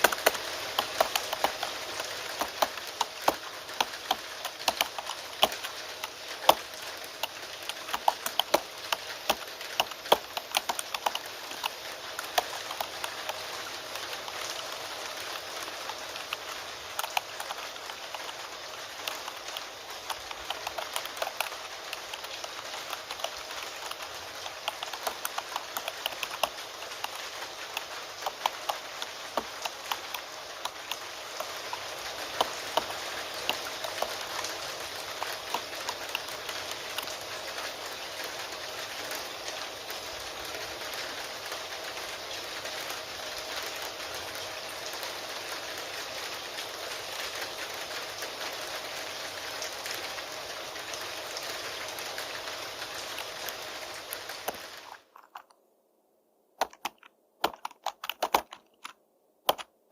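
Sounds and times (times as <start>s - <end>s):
keyboard typing: 0.0s - 37.2s, 56.6s - 59.7s
rain hissing: 0.0s - 55.6s.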